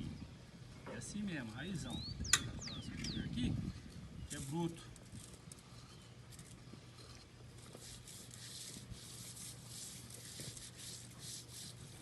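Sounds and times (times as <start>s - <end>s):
hands rubbing salt into meat: 7.6s - 12.0s.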